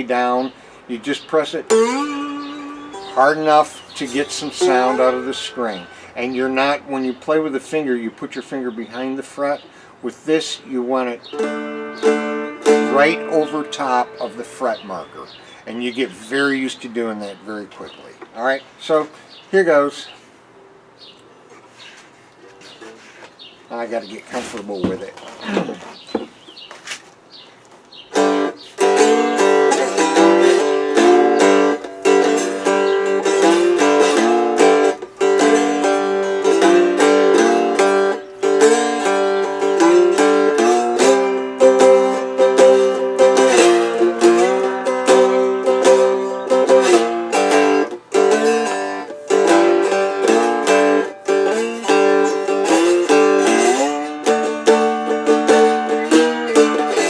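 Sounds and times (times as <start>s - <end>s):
slide guitar blues lick: 0.3s - 6.8s, 11.2s - 15.3s, 28.1s - 57.0s.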